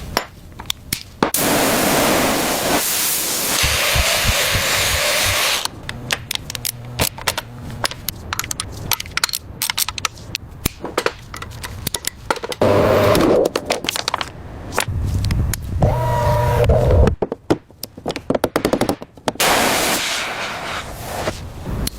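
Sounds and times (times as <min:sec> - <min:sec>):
air tool hissing: 0:01.4 - 0:05.7, 0:19.4 - 0:21.4
low hum: 0:03.6 - 0:08.0, 0:14.9 - 0:17.2.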